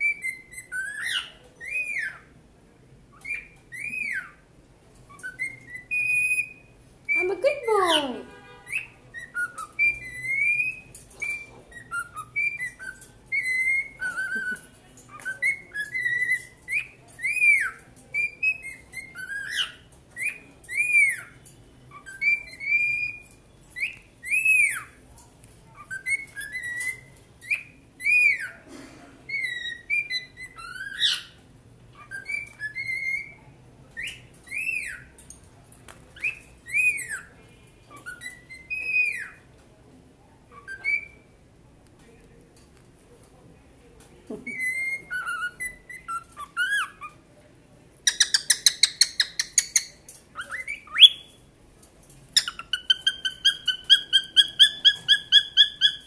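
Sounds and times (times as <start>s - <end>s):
cockatiels whistling: 0.0s - 2.3s, 3.1s - 4.4s, 5.1s - 6.7s, 8.7s - 25.0s, 25.8s - 28.6s, 29.3s - 31.4s, 32.0s - 33.4s, 34.0s - 35.1s, 36.2s - 37.3s, 37.9s - 39.4s, 40.6s - 41.3s, 44.5s - 47.2s, 48.1s - 51.4s, 52.4s - 56.0s.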